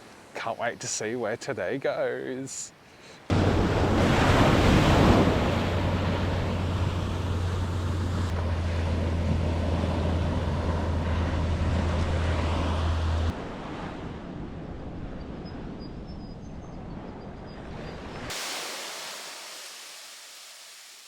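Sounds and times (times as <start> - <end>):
ocean surf breaking: 0.0 - 14.6, 17.6 - 21.0
wind rumbling on microphone: 3.3 - 18.3.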